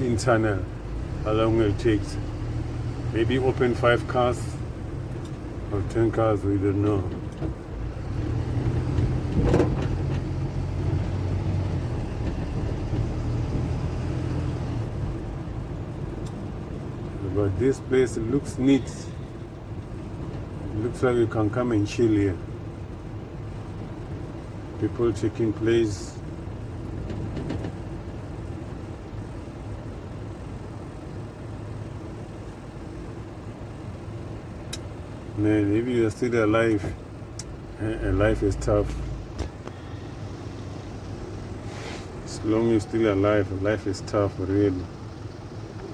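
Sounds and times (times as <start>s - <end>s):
car engine hum and road noise: 0.0s - 45.9s
car engine running: 26.2s - 45.9s.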